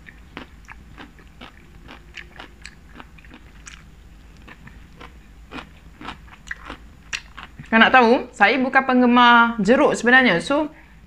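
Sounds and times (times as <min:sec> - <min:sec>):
crunchy chewing: 0:00.0 - 0:07.7.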